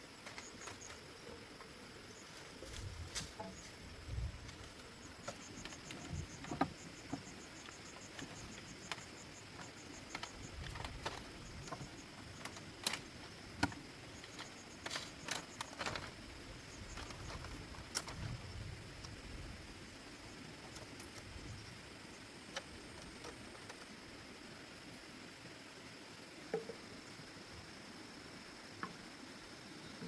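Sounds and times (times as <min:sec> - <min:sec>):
insect trilling: 0:00.0 - 0:18.7
sharp clicks and knocks: 0:05.2 - 0:16.2.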